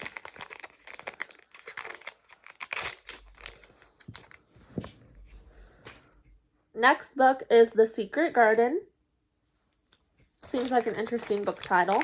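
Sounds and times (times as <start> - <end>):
plastic wrapping crinkling and tearing: 0.0 - 4.4, 10.4 - 12.0.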